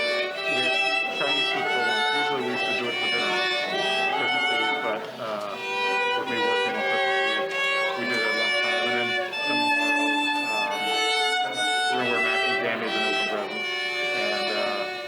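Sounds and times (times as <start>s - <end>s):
violin melody: 0.0s - 15.0s.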